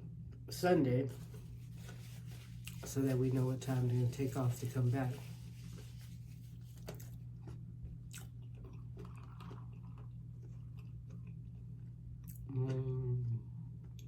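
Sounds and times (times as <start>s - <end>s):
steady low hum: 0.0s - 14.0s
person chewing food: 2.5s - 2.9s, 5.6s - 13.0s.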